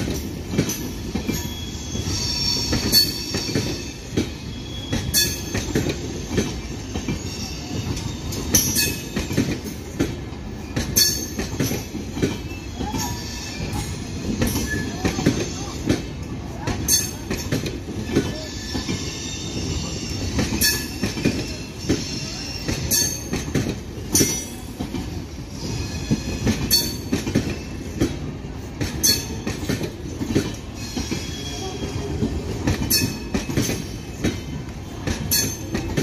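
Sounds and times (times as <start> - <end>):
train coaches rumbling: 0.0 - 36.0
faint high wheel squeal: 1.3 - 9.2, 12.0 - 15.8, 18.0 - 23.4, 25.4 - 27.9, 30.6 - 34.6
wheel clacks over rail joints: 7.8 - 19.0, 20.2 - 25.2, 26.1 - 36.0.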